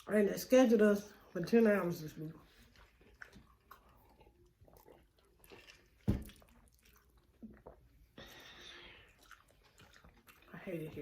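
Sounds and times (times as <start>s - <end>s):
chewing and biting clicks: 2.5s - 7.9s, 9.0s - 10.5s.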